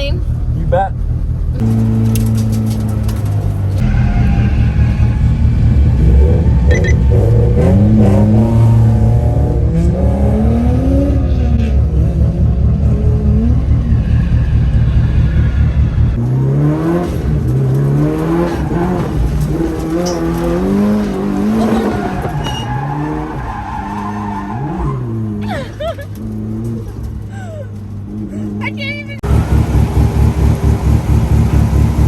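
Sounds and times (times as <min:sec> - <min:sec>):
deep rumble: 0:00.0 - 0:23.4
car engine revving: 0:00.0 - 0:32.0.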